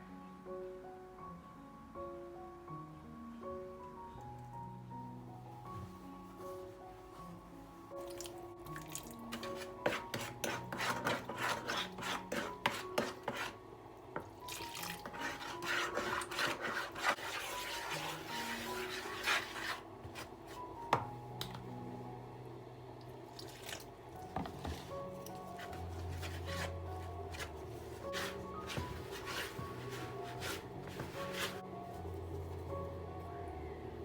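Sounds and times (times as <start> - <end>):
soft background music: 0.0 - 34.0
rubbing and scraping strokes: 9.4 - 13.6, 15.0 - 20.7, 25.5 - 32.0.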